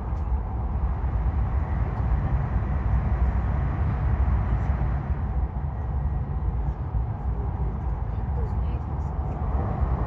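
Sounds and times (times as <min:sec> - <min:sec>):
train low rumble from inside: 0:00.0 - 0:10.0.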